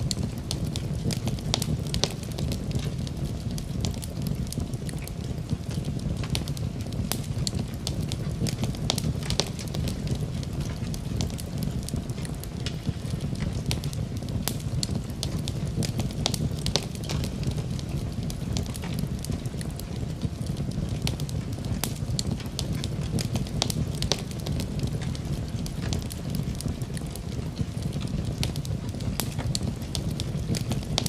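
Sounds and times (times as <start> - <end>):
steady rain: 0.0 - 31.0
wood fire crackling and popping: 0.0 - 31.0.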